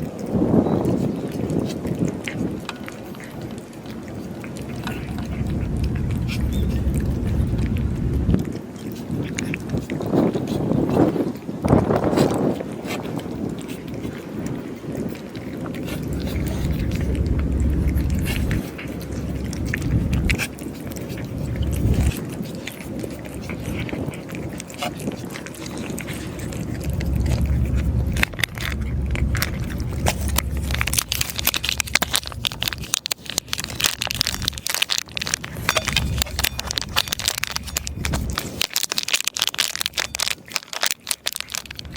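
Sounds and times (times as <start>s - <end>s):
cats crunching dry food: 0.0s - 41.9s
low rumble: 4.5s - 8.6s, 15.7s - 38.7s.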